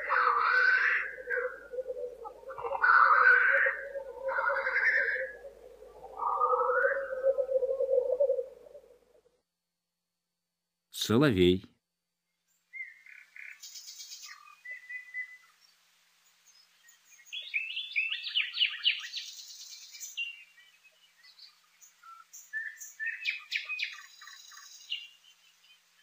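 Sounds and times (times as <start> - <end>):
nightingale singing: 0.0 - 9.1, 12.3 - 26.0.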